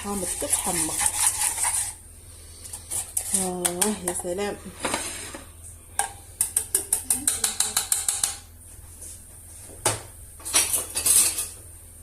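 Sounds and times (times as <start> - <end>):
utensil clicking against a pot: 2.7 - 4.3, 6.0 - 8.4.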